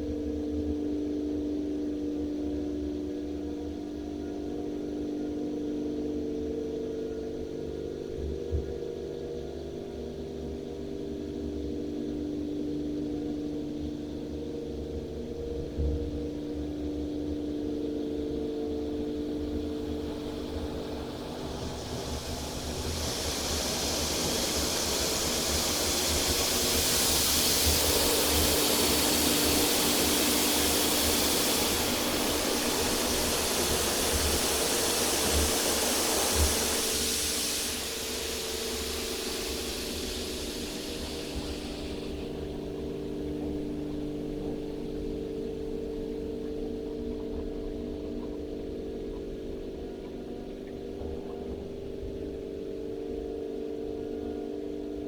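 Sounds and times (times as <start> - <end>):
car wash machine hum: 20.2 - 42.7.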